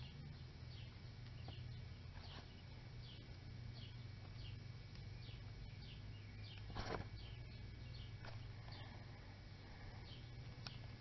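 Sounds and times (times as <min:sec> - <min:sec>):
low steady hum: 0:00.0 - 0:11.0
small bird chirping: 0:00.0 - 0:11.0.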